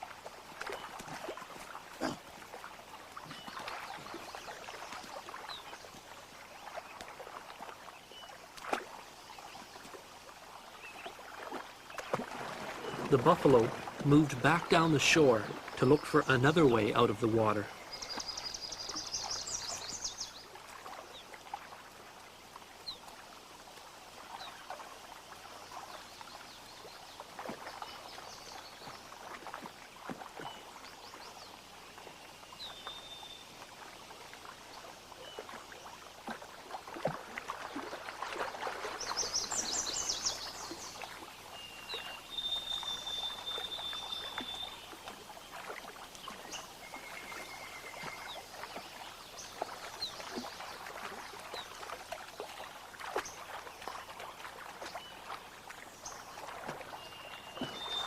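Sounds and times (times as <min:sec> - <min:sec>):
bison splashing through water: 0:00.0 - 0:32.0, 0:32.6 - 0:58.0.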